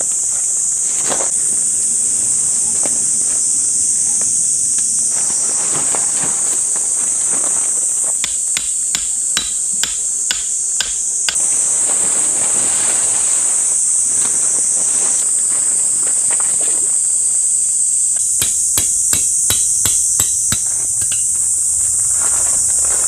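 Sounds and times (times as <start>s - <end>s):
high insect chorus: 0.0s - 23.0s
sharp knocks: 8.2s - 11.4s, 18.4s - 21.3s.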